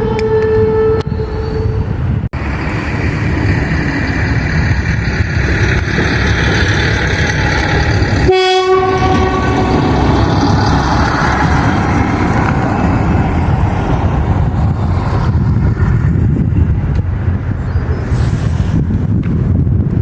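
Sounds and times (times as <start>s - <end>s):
locomotive horn: 0.0s - 2.0s, 8.2s - 10.3s
train rumbling past: 0.0s - 20.0s.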